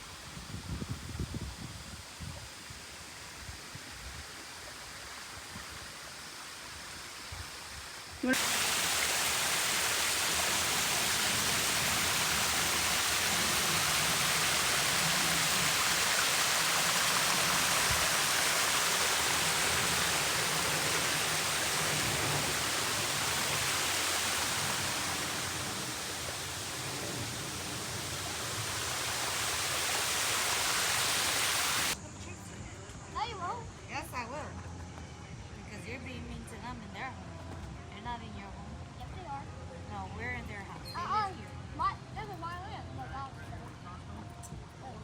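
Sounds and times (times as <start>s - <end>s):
waterfall rushing: 5.9s - 32.0s.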